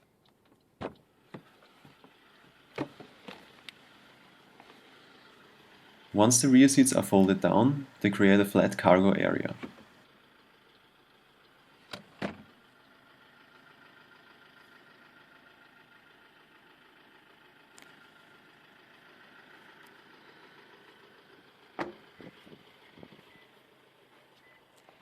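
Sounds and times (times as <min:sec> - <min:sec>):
car seat backs clunking: 0:00.8 - 0:01.9, 0:02.7 - 0:03.5, 0:09.6 - 0:09.9, 0:11.9 - 0:12.5, 0:21.8 - 0:23.2.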